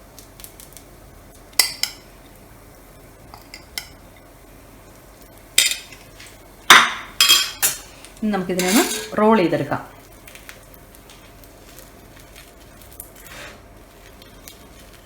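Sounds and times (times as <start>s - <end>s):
metal utensil clinking on griddle: 5.6s - 6.1s, 6.7s - 7.9s, 8.6s - 9.2s.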